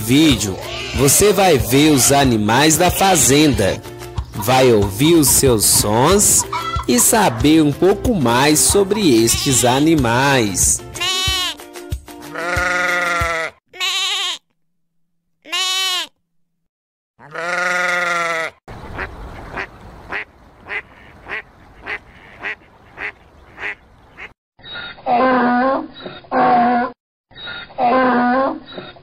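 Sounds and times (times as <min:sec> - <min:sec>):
donkey braying: 0:00.1 - 0:08.0, 0:08.7 - 0:09.9, 0:10.8 - 0:11.6, 0:12.2 - 0:14.4, 0:17.2 - 0:20.2
livestock calls: 0:00.6 - 0:01.3, 0:17.2 - 0:24.3
ducks quacking: 0:02.8 - 0:07.6, 0:17.2 - 0:24.3.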